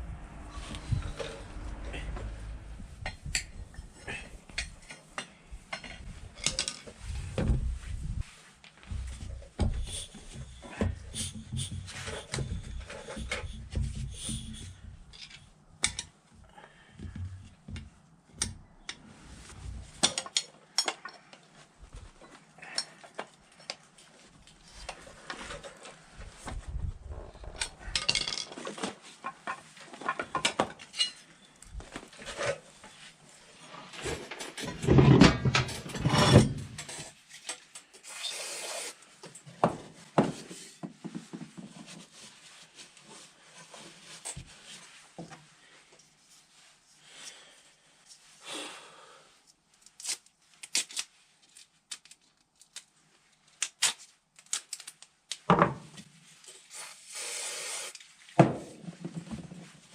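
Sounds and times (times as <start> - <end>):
rubbing and scraping: 6.0 - 15.1
metal parts and tools clinking: 12.0 - 16.1, 27.4 - 28.9, 30.0 - 31.6.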